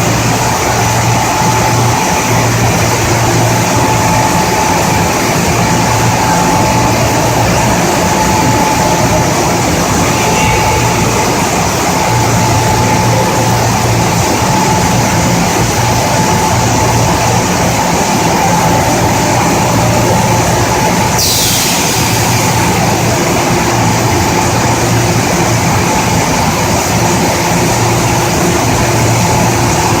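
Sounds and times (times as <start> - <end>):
industrial machine humming: 0.0 - 30.0
thin steady whine: 0.0 - 30.0
loud hiss: 18.2 - 25.0.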